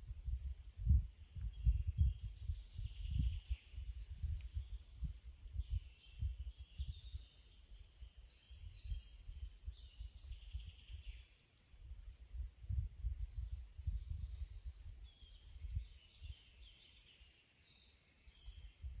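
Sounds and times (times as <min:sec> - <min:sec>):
uneven low rumble: 0:00.0 - 0:07.3
birds chirping high and thin: 0:00.0 - 0:19.0.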